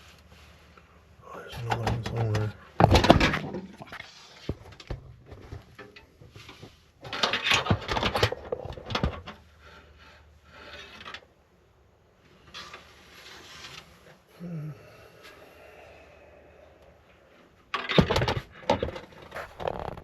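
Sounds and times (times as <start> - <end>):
rattling and scraping: 19.3 - 20.0.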